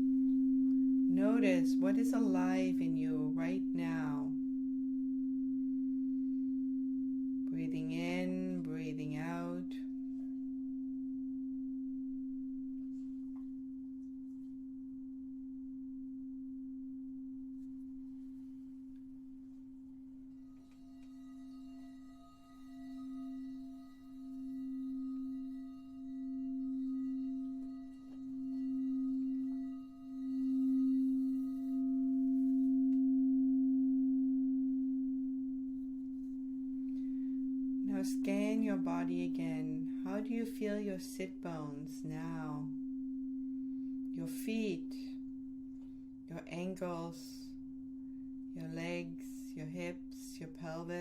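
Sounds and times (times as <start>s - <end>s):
singing bowl tone: 0.0s - 51.0s
bright ringing overtones: 20.4s - 45.7s.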